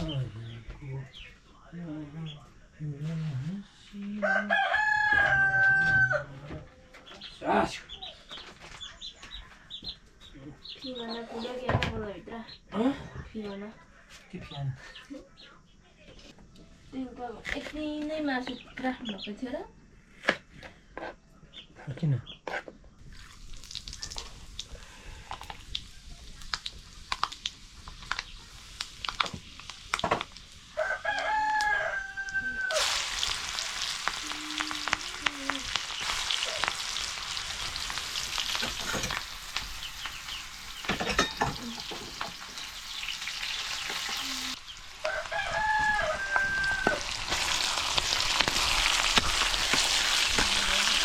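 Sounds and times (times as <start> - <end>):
rooster crowing: 4.2 - 6.6, 30.7 - 34.8, 45.0 - 47.8
food sizzling in oil: 23.0 - 51.0.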